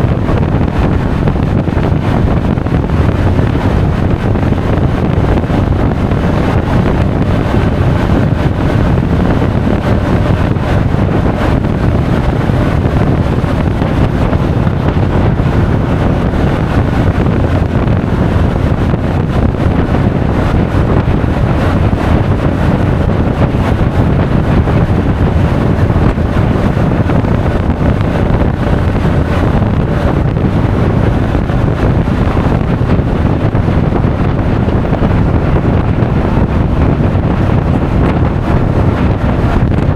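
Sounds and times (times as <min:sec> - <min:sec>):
road noise: 0:00.0 - 0:39.9
wind buffeting microphone: 0:00.0 - 0:39.9.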